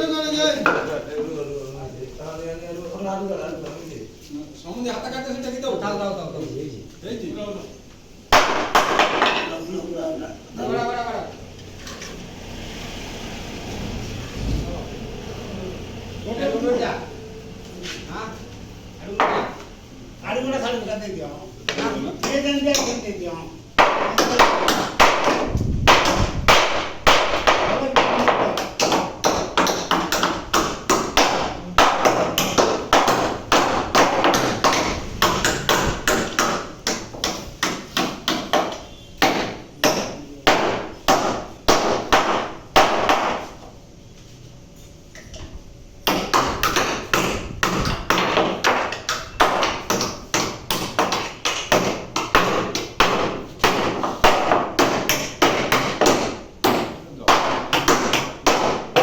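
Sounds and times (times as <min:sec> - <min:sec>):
hammer striking: 0:08.3 - 0:09.6, 0:19.2 - 0:19.6, 0:23.8 - 0:43.5, 0:46.0 - 0:59.0.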